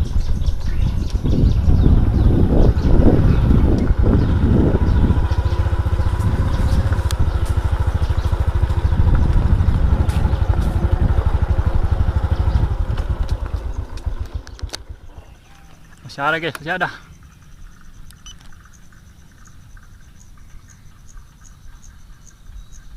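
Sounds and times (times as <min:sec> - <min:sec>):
wind buffeting microphone: 0:00.0 - 0:16.8.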